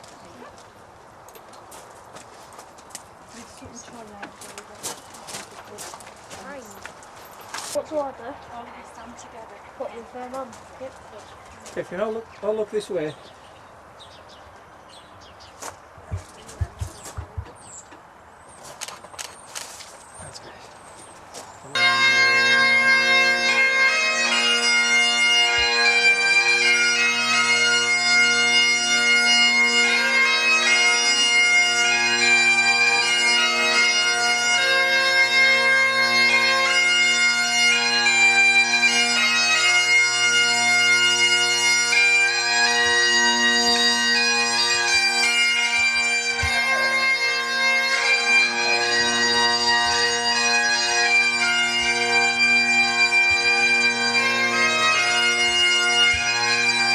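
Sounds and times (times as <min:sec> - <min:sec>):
bagpipe drones: 0:03.2 - 0:13.1, 0:16.1 - 0:17.6, 0:21.7 - 0:56.9
bagpipe chanter melody: 0:21.7 - 0:56.9.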